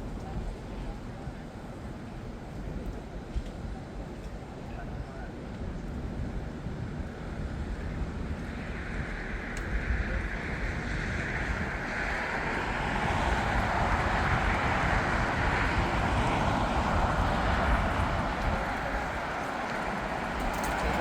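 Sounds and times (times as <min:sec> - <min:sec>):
jet airliner passing: 0:07.2 - 0:21.0.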